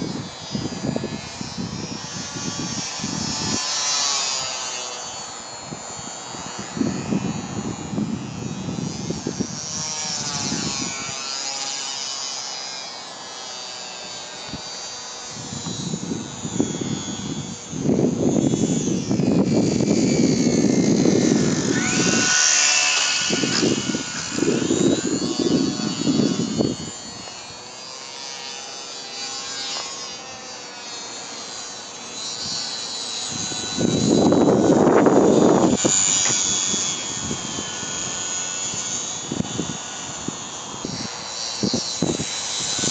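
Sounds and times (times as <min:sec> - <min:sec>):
wind buffeting microphone: 0:00.0 - 0:03.7, 0:04.3 - 0:11.2, 0:15.3 - 0:27.6, 0:32.4 - 0:42.9
model plane motor whining: 0:00.0 - 0:42.9.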